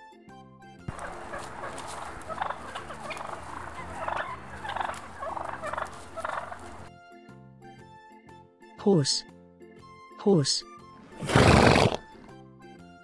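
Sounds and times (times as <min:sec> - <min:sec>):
turkeys gobbling: 0:00.9 - 0:06.9.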